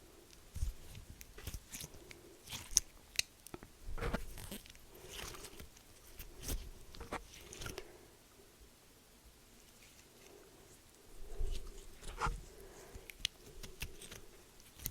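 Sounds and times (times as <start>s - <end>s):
crisp crunching and crackling: 0.5s - 7.9s.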